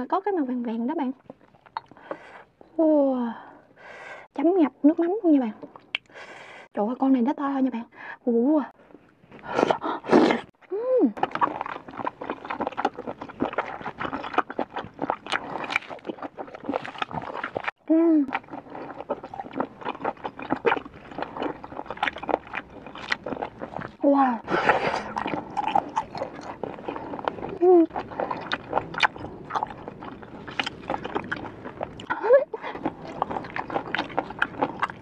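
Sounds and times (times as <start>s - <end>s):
wet chewing mouth noises: 1.2s - 2.4s, 4.9s - 6.2s, 11.2s - 35.0s.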